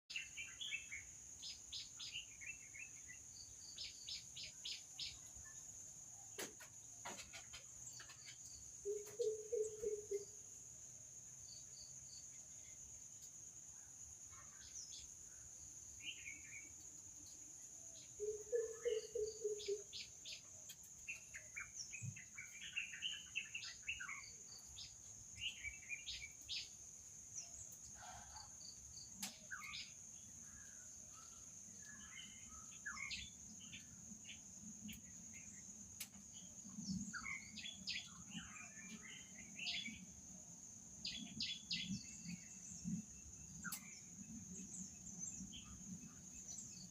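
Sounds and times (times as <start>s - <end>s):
low rapid pulsed bird calls: 7.2s - 10.4s, 17.9s - 26.8s.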